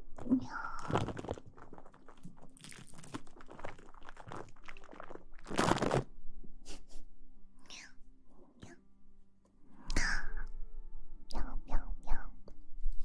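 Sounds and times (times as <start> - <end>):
rustling and crinkling: 0.2 - 6.1.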